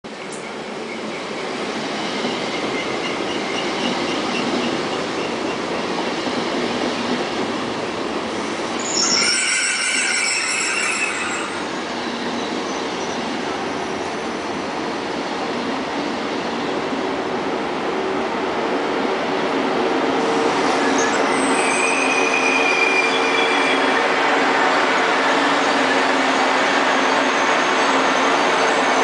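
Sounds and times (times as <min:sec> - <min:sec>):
train wheels rumbling on rails: 0:00.1 - 0:29.0
metallic wheel squeal: 0:08.8 - 0:11.8, 0:20.8 - 0:24.0.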